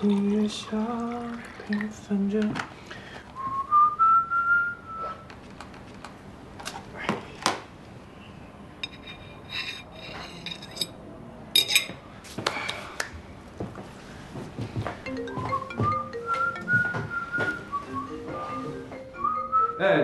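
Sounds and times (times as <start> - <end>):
person whistling a tune: 3.4 - 5.2, 15.4 - 20.0
dishes and cutlery clinking: 8.8 - 11.0, 11.6 - 12.0.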